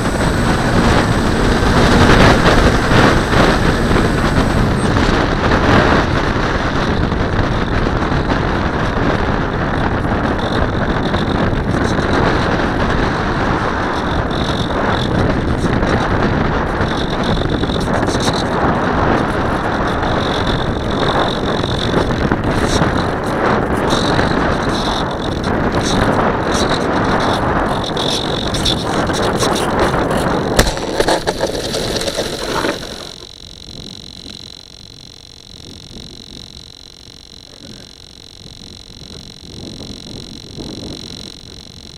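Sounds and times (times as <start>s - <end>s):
wind buffeting microphone: 0.0s - 34.5s, 38.4s - 41.9s.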